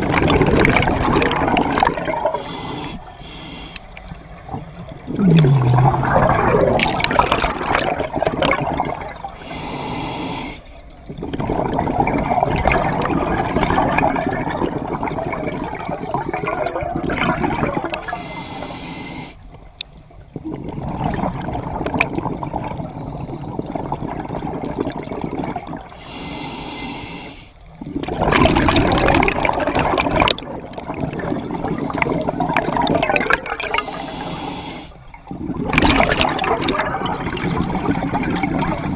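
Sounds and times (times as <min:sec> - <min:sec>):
regulator hissing inhale: 0:01.4 - 0:04.0, 0:09.4 - 0:10.8, 0:18.0 - 0:19.6, 0:26.0 - 0:27.7, 0:33.7 - 0:35.1
bubbling exhaust: 0:05.1 - 0:09.6.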